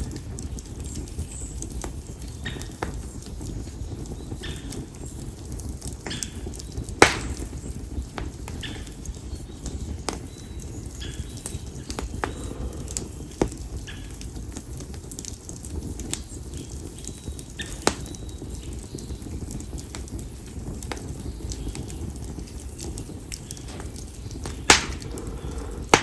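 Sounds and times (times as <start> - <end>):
campfire crackling: 0.0 - 26.0
low rumble of flames: 0.0 - 26.0
sharp snaps: 7.0 - 7.5, 23.4 - 26.0
loud fire pop: 7.0 - 7.6, 23.6 - 26.0.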